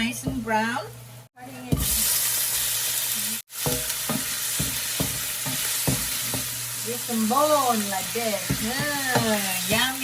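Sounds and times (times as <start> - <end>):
food sizzling in hot oil: 0.0 - 10.0
spatula striking a wok: 3.6 - 6.6, 8.4 - 9.9.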